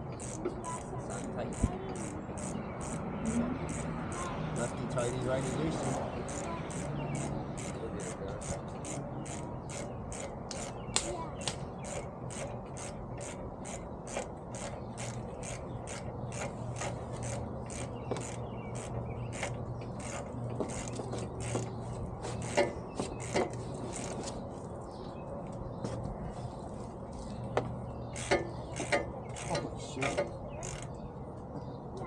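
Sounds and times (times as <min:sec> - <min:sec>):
steady low hum: 0:00.0 - 0:32.0
ratchet wrench clicking: 0:00.2 - 0:10.8, 0:11.8 - 0:21.7, 0:22.4 - 0:24.3, 0:28.1 - 0:31.0.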